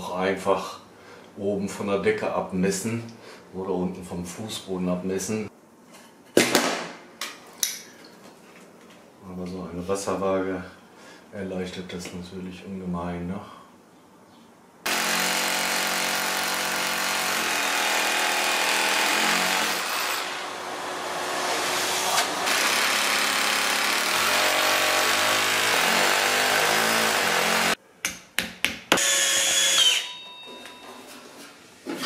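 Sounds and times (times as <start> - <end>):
electric drill running: 14.9 - 27.8, 29.0 - 30.2.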